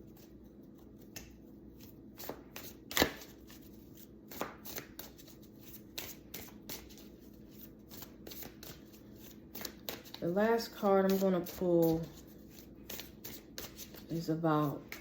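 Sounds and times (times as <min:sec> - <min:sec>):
cards being shuffled: 0:00.1 - 0:15.0
card slap: 0:02.3 - 0:03.3.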